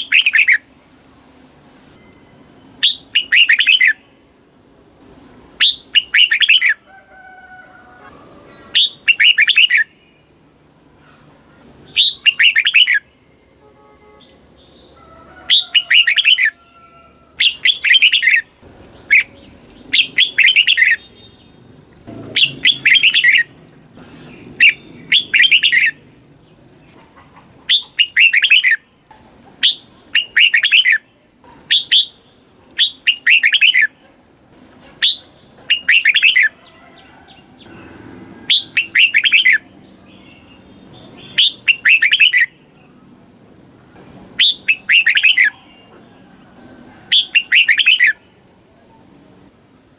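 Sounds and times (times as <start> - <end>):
bird singing warbled phrases: 0.0 - 0.7, 2.1 - 4.2, 5.6 - 6.9, 8.5 - 13.4, 14.2 - 16.6, 17.4 - 34.2, 34.9 - 36.8, 37.6 - 46.0, 47.1 - 49.8.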